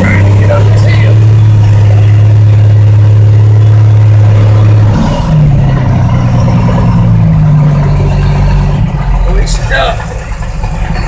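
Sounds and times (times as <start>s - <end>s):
diesel truck engine working hard: 0.0s - 11.0s.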